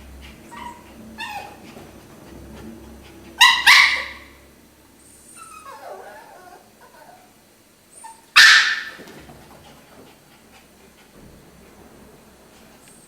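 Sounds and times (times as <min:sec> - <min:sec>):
dog whining: 0:00.2 - 0:09.1
dog yipping and whimpering: 0:00.5 - 0:01.7, 0:03.4 - 0:04.4, 0:05.2 - 0:09.1
dog barking sharply: 0:08.4 - 0:09.2.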